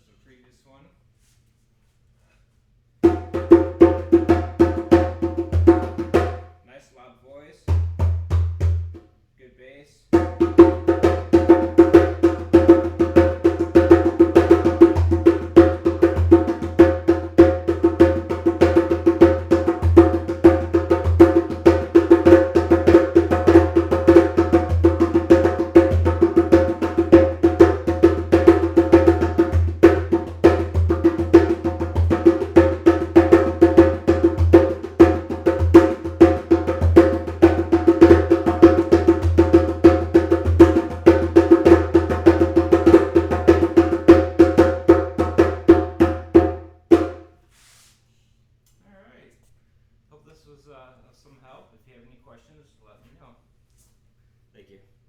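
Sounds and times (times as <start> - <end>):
djembe played by hand: 3.0 - 6.5, 7.7 - 9.1, 10.2 - 47.3.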